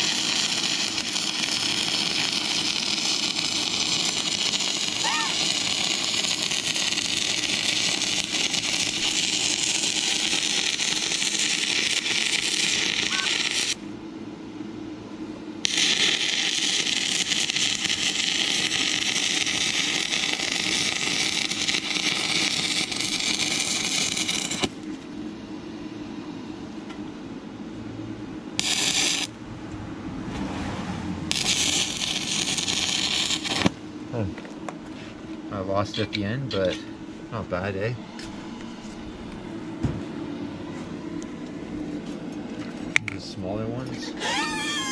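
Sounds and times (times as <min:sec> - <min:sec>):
welding arc crackling hiss: 0:00.0 - 0:13.9, 0:15.6 - 0:25.0, 0:28.6 - 0:29.4, 0:31.3 - 0:34.3, 0:43.8 - 0:44.9.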